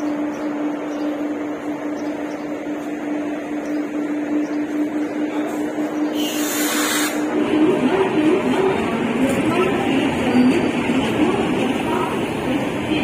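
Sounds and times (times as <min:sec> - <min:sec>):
electric train humming: 0:00.0 - 0:13.0
hiss: 0:06.2 - 0:07.2.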